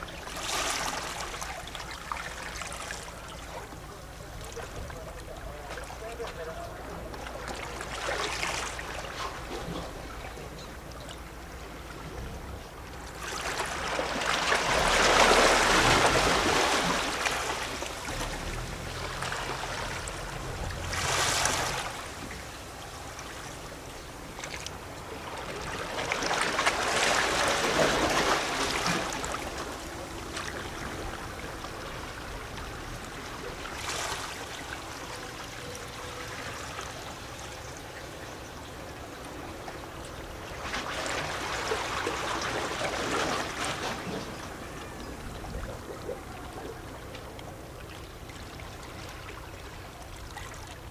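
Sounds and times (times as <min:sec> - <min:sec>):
water splashing: 0:00.0 - 0:10.5, 0:13.1 - 0:37.5
waves lapping against rocks: 0:00.0 - 0:50.9
larger waves washing in: 0:12.3 - 0:35.3.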